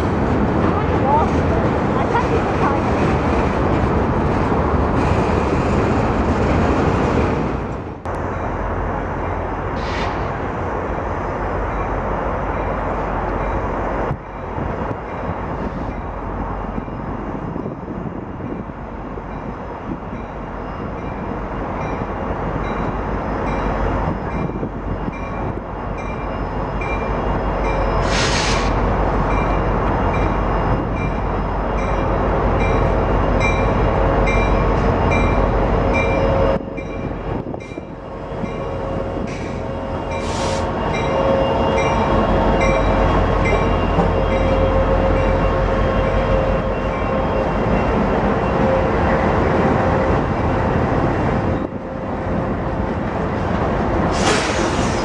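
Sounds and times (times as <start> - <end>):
freight train rumble and rattle: 0.0 - 55.0.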